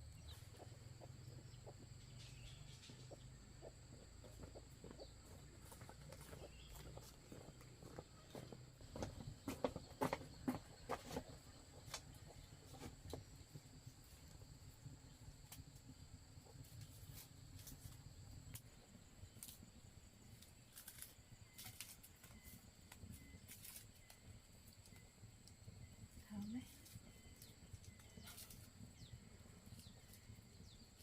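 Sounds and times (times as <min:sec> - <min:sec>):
soft footsteps: 0:02.8 - 0:13.4.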